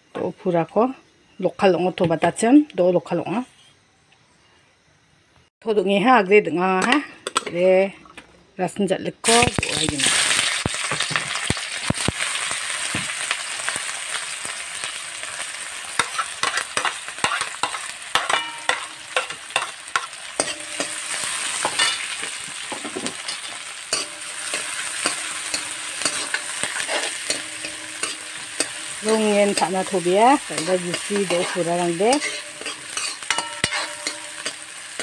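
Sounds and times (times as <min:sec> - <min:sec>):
vegetables sizzling in hot oil: 0:09.2 - 0:35.0
metal ladle scraping a pan: 0:16.0 - 0:22.4, 0:23.0 - 0:35.0.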